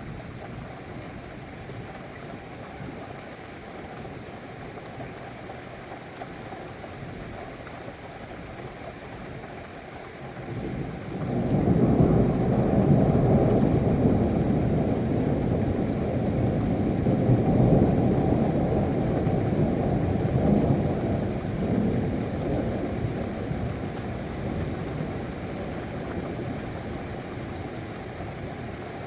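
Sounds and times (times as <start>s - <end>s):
steady rain: 0.0s - 29.0s
thunder rumbling: 11.2s - 26.6s.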